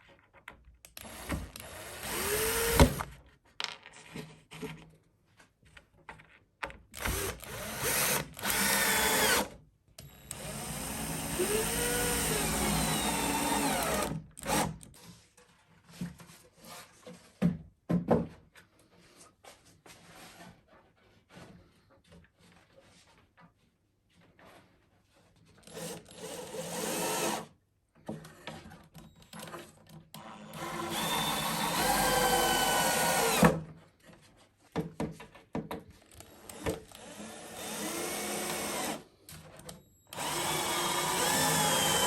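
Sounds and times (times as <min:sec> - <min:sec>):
power drill drilling wood: 0:01.0 - 0:03.1, 0:07.0 - 0:14.8, 0:25.7 - 0:27.5, 0:30.4 - 0:33.6, 0:36.3 - 0:39.0, 0:40.1 - 0:42.0.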